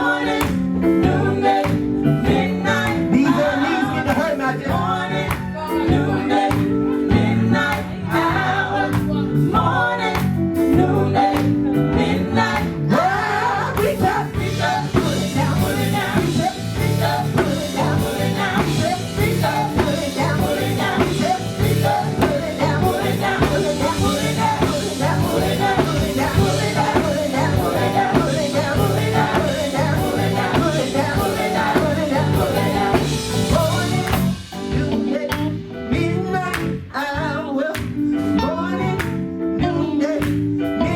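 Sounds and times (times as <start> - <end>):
singers singing: 0.0 - 37.7
bass guitar: 0.0 - 40.9
electric guitar: 0.0 - 40.9
drums playing: 13.8 - 35.1.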